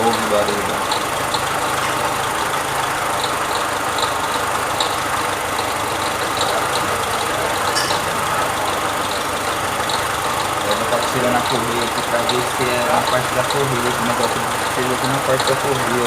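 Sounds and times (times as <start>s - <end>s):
car engine idling: 0.0s - 16.0s
tinny engine noise: 0.0s - 16.0s.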